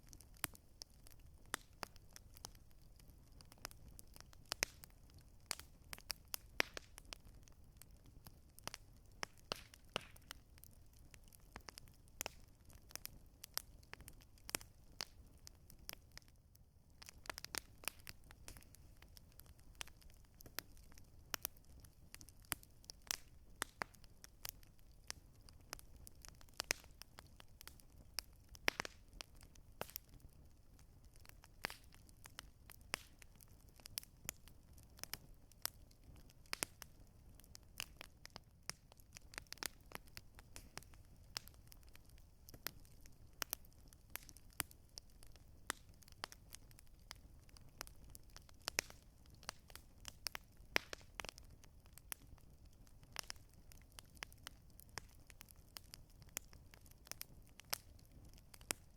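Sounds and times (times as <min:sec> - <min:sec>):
campfire crackling: 0:00.0 - 0:58.9.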